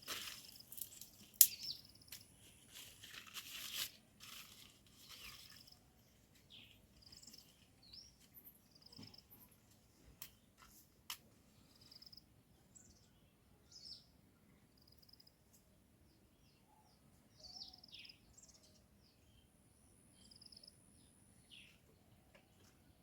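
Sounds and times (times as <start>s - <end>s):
rustling: 0.0s - 8.5s
faint small bird chirps: 0.4s - 2.9s, 4.6s - 10.5s, 11.6s - 23.0s.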